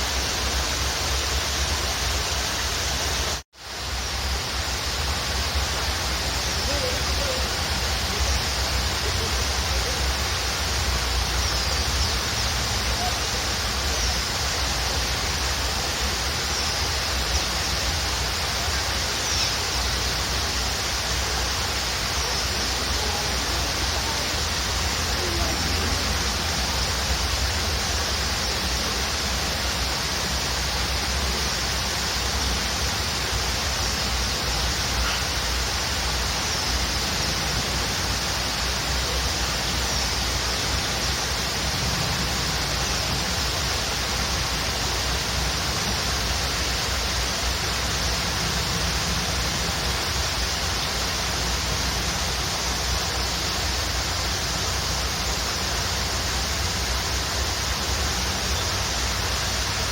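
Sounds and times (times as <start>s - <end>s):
waterfall roaring: 0.0s - 59.9s
faint bird chirps: 15.7s - 28.9s, 33.8s - 37.4s.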